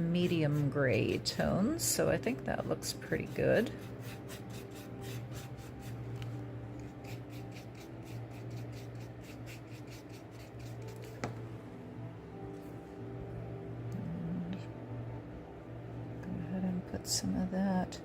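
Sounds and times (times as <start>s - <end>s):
steady low hum: 0.0s - 18.0s
paintbrush scrubbing strokes: 6.8s - 11.2s.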